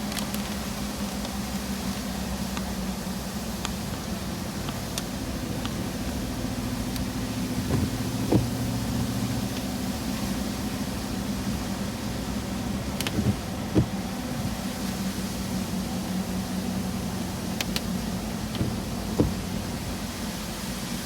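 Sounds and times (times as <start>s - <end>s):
truck engine and road drone: 0.0s - 21.0s
short knocks: 7.7s - 8.7s, 13.1s - 14.0s.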